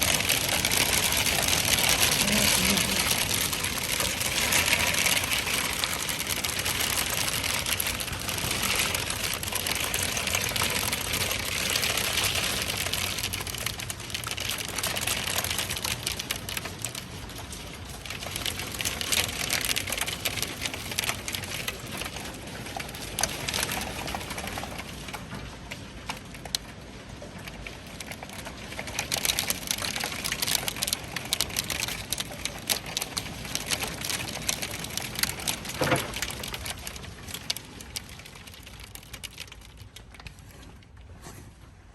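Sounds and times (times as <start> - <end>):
hailstones pelting down: 0.0 - 41.9.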